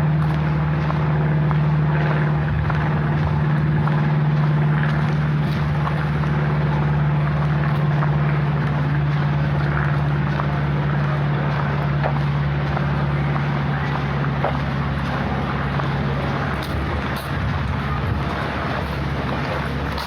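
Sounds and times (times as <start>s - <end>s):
constant rushing noise: 0.0s - 20.0s
low mechanical hum: 0.0s - 20.0s.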